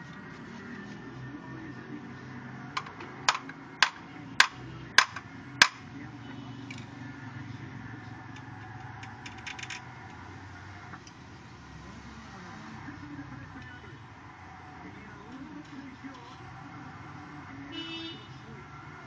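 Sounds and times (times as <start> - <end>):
hammer striking metal: 2.8 - 5.8.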